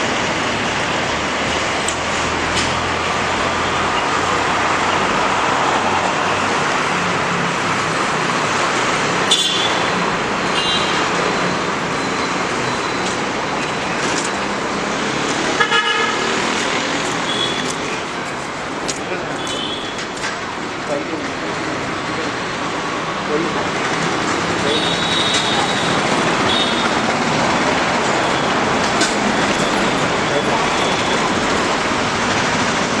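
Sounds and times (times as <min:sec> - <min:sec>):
road traffic noise: 0:00.0 - 0:33.0
vehicle horns honking: 0:09.3 - 0:11.2, 0:15.5 - 0:20.2, 0:24.7 - 0:32.6.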